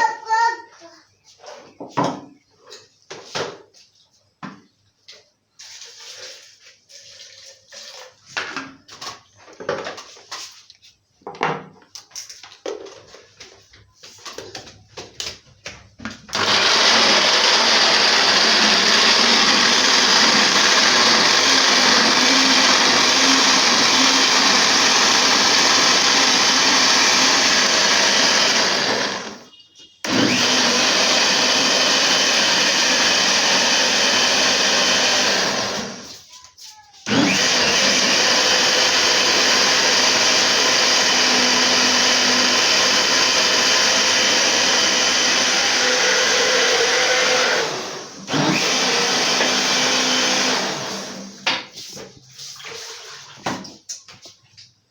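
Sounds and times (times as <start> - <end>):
electric blender grinding: 16.3 - 36.2, 37.1 - 51.5.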